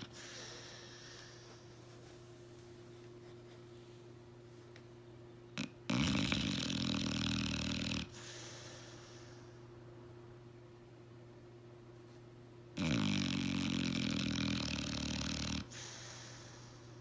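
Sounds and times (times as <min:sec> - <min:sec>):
dog snoring: 0:00.0 - 0:01.6, 0:05.6 - 0:09.4, 0:12.8 - 0:16.9
faint steady hum: 0:00.0 - 0:17.0.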